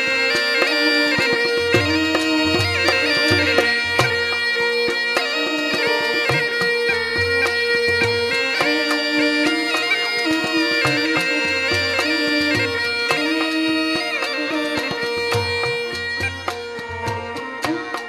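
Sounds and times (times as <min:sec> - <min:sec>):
reed pipe melody over drone: 0:08.4 - 0:17.8.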